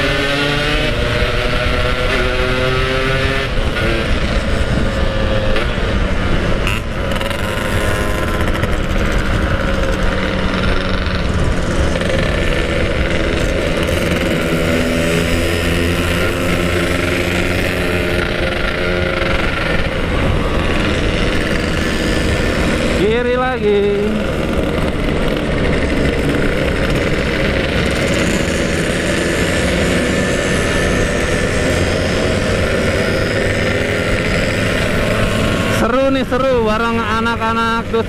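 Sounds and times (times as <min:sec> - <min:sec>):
wind rush on microphone: 0:00.0 - 0:07.2, 0:07.8 - 0:37.9
two-stroke motorcycle engine: 0:00.0 - 0:38.0.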